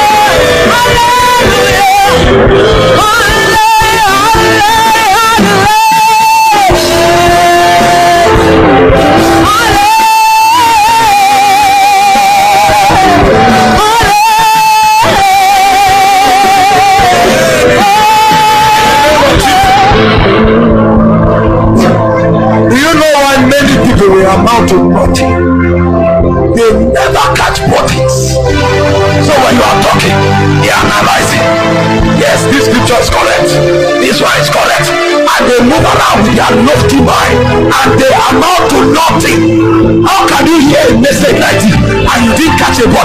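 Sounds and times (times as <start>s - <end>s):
singer holding wavering notes: 0.0s - 23.0s
instrumental backing: 0.0s - 43.0s.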